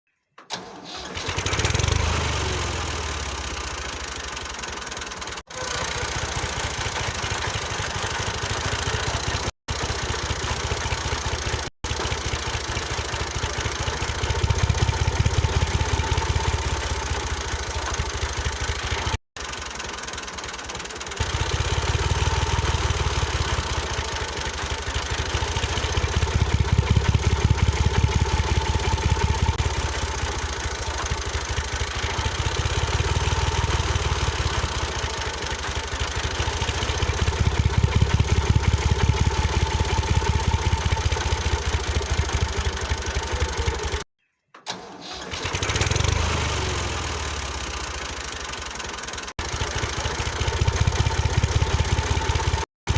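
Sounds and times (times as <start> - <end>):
small engine running: 0.5 - 44.1, 44.7 - 52.9.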